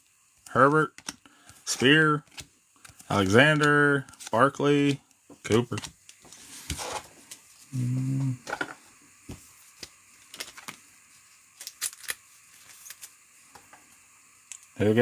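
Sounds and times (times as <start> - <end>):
cards being handled: 0.9 - 7.5, 9.3 - 13.2.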